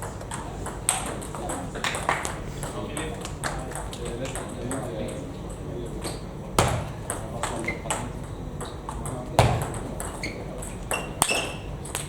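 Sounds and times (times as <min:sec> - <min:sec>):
shoe squeaks: 0:07.6 - 0:08.1, 0:09.4 - 0:11.8.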